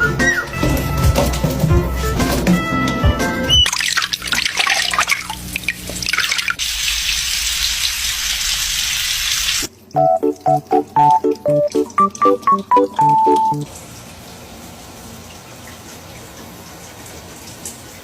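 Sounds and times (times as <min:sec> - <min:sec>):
background music with steady beat: 0:00.0 - 0:03.6, 0:10.0 - 0:13.7
tap water running into sink: 0:02.8 - 0:14.4.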